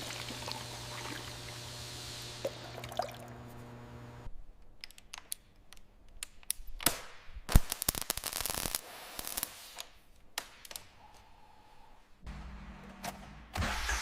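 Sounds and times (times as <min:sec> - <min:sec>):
sharp clicks from parts handled: 0:04.6 - 0:07.0.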